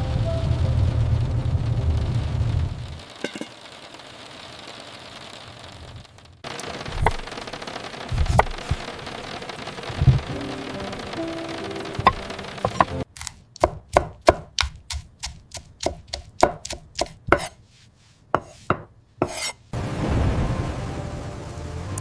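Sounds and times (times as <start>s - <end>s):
rain: 0.0s - 13.0s, 19.7s - 22.0s
knife chopping on cutting board: 7.0s - 7.2s, 8.2s - 8.8s, 12.0s - 17.6s, 18.4s - 19.6s.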